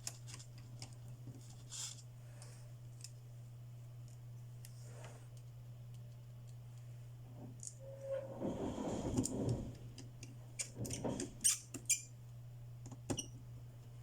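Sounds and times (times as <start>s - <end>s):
soft scraping of tools: 7.4s - 9.9s.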